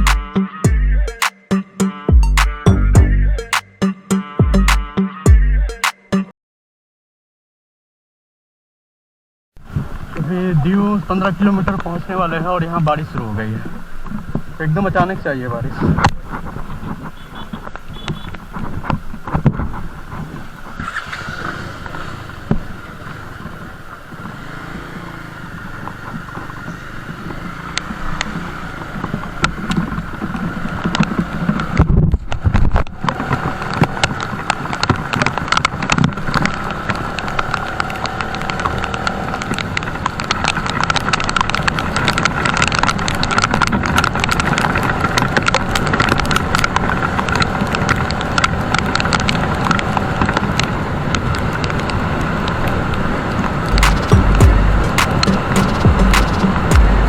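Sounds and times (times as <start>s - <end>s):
motorcycle engine and road noise: 9.6s - 57.0s
rain ticking: 33.1s - 57.0s
heavy thump: 53.8s - 55.1s.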